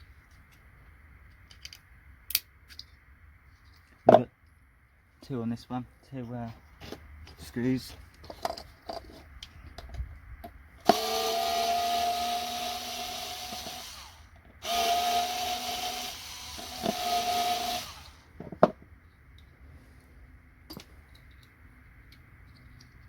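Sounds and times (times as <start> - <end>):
electric screwdriver motor running: 10.8 - 18.3.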